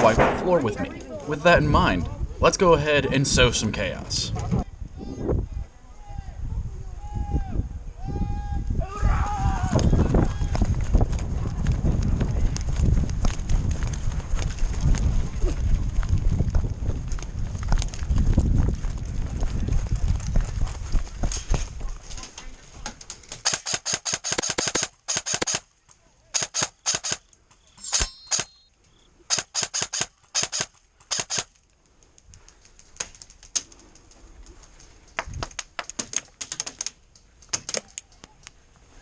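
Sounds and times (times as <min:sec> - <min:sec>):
airsoft guns firing bursts: 0:24.2 - 0:25.6.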